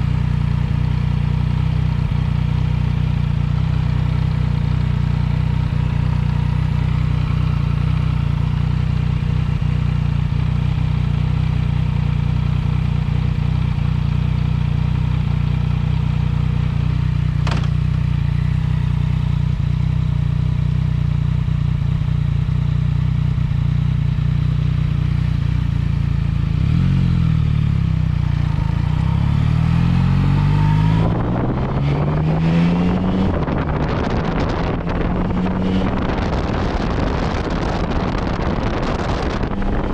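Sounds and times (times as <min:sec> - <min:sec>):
motorcycle engine accelerating: 0:00.0 - 0:39.9
wind noise: 0:29.8 - 0:39.9.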